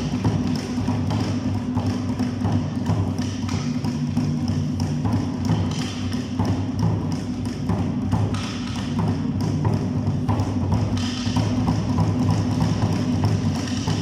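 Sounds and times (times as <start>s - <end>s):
drums beating quick rhythm: 0.0s - 14.0s.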